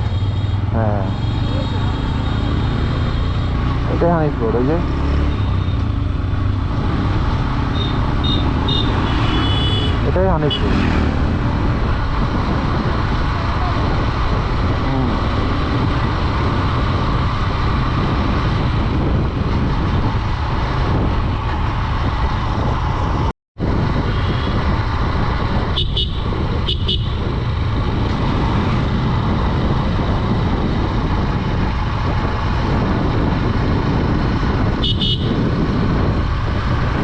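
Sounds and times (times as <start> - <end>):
motorcycle wind and road rush: 0.0 - 37.0
motorcycle horn toots: 7.7 - 10.8, 24.1 - 24.6, 25.7 - 27.2, 34.7 - 35.5.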